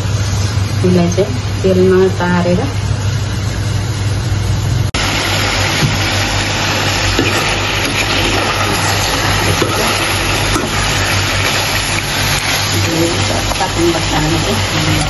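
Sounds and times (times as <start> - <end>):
constant low hum: 0.0 - 15.0
curry sizzling in a pan: 5.0 - 15.0.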